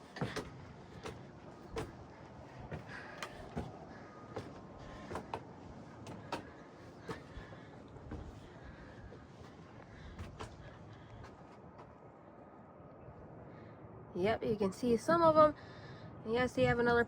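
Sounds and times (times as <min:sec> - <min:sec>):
footsteps climbing stairs: 0:00.0 - 0:11.9.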